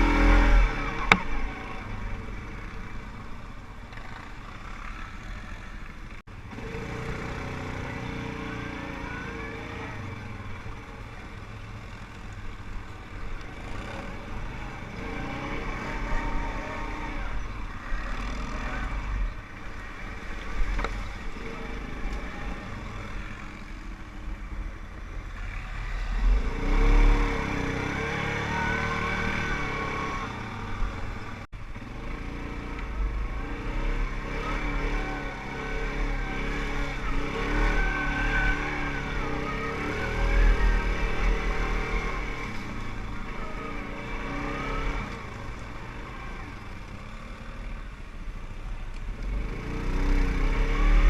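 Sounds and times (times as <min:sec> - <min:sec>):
quad bike engine revving: 0:00.0 - 0:02.0, 0:06.5 - 0:10.4, 0:13.6 - 0:19.2, 0:25.8 - 0:47.4, 0:49.2 - 0:51.0.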